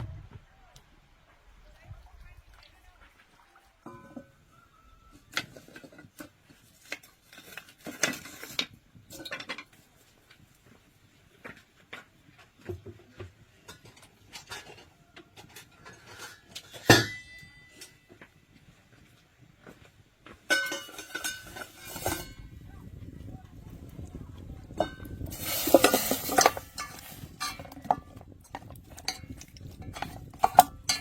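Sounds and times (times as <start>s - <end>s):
dishes and utensils clinking: 3.8s - 4.4s, 13.6s - 18.2s, 20.5s - 22.6s, 24.7s - 31.0s.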